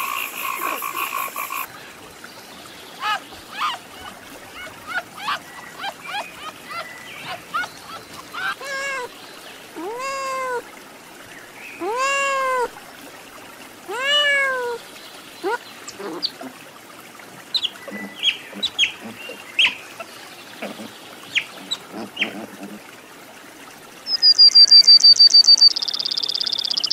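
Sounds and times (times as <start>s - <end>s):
cat meowing: 13.9s - 14.8s.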